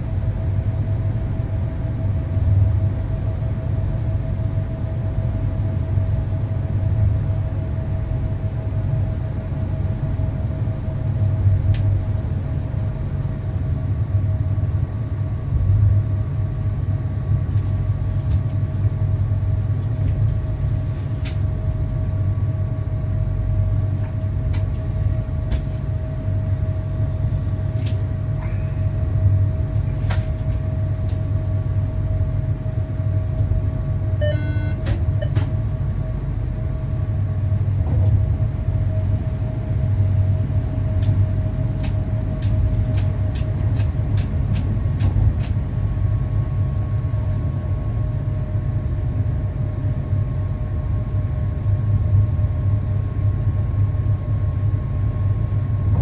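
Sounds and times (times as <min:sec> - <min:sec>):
constant hum: 0:00.0 - 0:56.0
electric train rumbling: 0:00.0 - 0:56.0.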